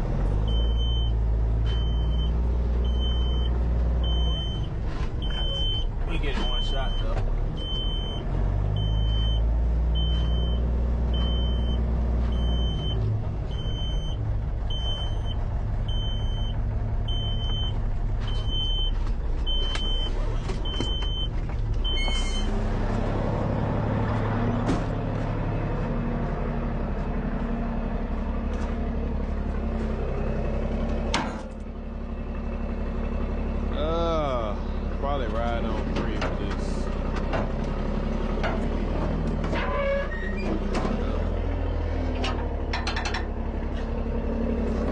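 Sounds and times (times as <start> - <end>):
diesel engine under load: 0.0 - 44.9
travel alarm beeping: 0.5 - 8.2, 8.8 - 22.2.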